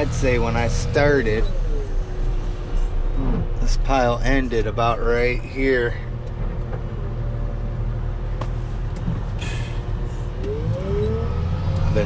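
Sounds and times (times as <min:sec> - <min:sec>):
rising whine: 0:00.0 - 0:04.7, 0:10.2 - 0:12.0
vehicle engine running: 0:00.0 - 0:12.0.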